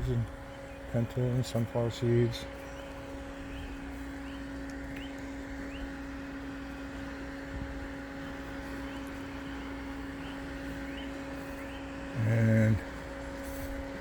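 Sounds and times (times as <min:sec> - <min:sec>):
outdoor background noise: 0:00.0 - 0:14.0
steady machine hum: 0:00.0 - 0:14.0
bird chirping: 0:02.6 - 0:05.9.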